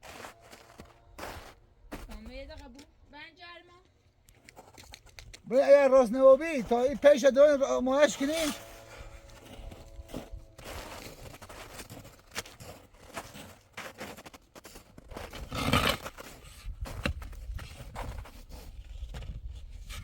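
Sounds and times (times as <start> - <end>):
loud rushing scrape: 8.0 - 11.2
hands scraping and rustling materials: 8.0 - 20.0.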